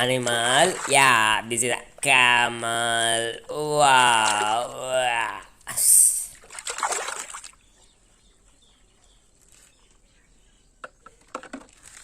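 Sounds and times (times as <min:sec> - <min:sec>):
water splashing off plastic toy: 0:06.4 - 0:07.6.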